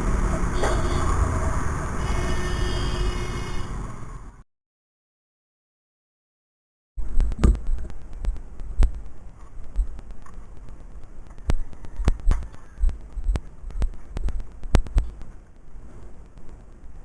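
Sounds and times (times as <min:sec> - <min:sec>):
sharp clicks and knocks: 0:07.0 - 0:17.0.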